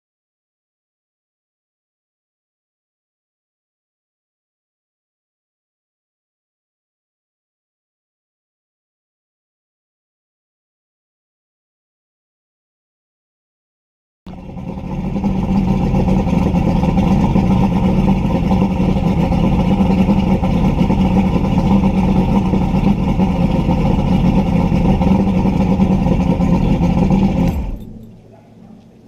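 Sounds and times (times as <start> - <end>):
boat engine running: 14.3 - 29.0.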